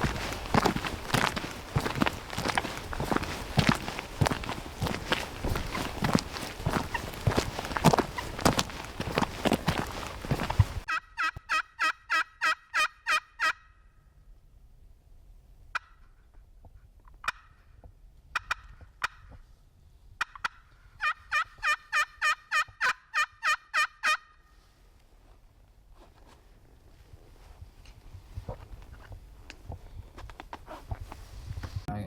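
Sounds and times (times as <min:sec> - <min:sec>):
turkey yelping: 0:10.9 - 0:13.7, 0:20.2 - 0:24.4.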